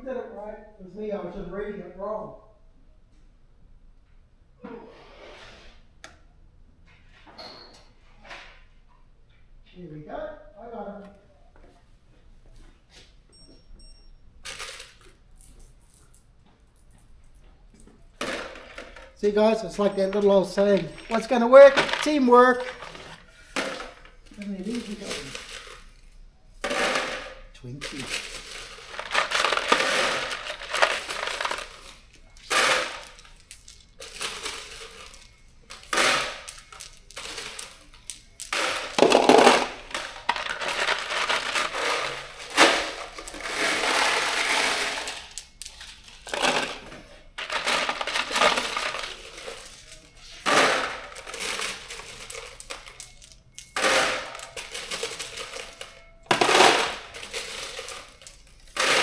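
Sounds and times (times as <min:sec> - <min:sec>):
metal bolts and nuts clinking: 0:14.0 - 0:59.0.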